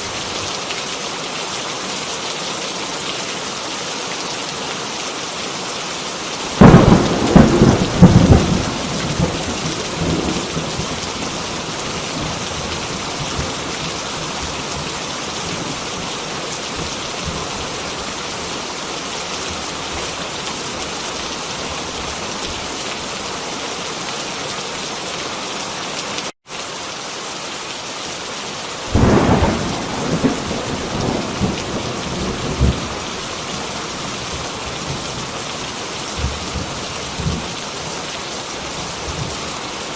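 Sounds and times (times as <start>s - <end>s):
heavy rain: 0.0s - 39.9s
thunder rolling: 6.5s - 13.6s, 28.9s - 33.2s.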